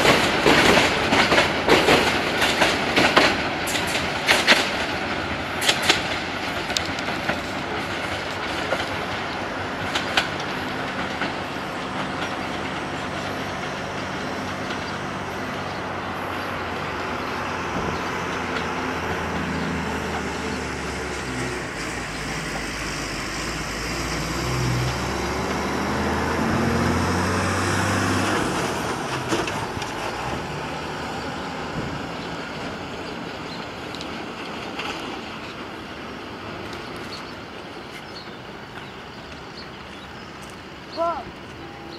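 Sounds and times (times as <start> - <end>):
train wheels clacking: 0.0 - 25.7
train rumbling: 0.0 - 41.9.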